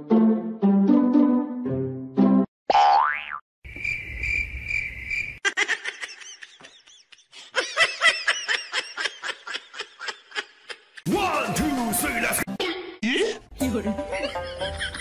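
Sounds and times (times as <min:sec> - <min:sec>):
people laughing: 0:05.4 - 0:11.4, 0:13.6 - 0:15.0.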